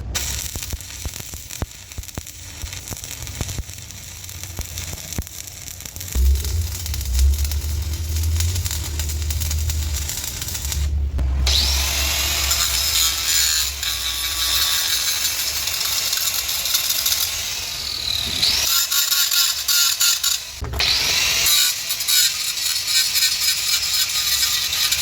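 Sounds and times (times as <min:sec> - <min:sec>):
power tool working on steel: 0:06.9 - 0:25.0.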